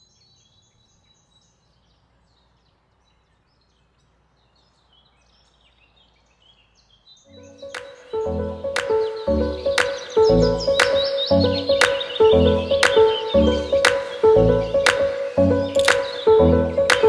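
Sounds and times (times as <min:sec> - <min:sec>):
birds chirping: 0:00.0 - 0:17.0
music: 0:07.3 - 0:17.0.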